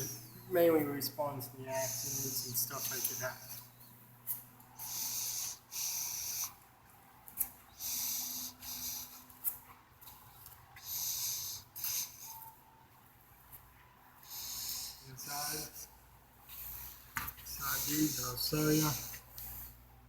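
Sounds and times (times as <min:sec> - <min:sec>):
person breathing heavily: 0:00.0 - 0:00.5, 0:01.7 - 0:03.6, 0:07.7 - 0:09.4, 0:10.3 - 0:12.5, 0:14.2 - 0:19.8.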